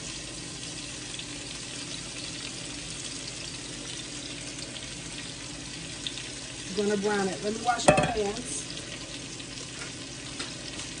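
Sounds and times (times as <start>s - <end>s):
meat sizzling in hot grease: 0.0s - 11.0s
grease popping: 7.8s - 8.6s.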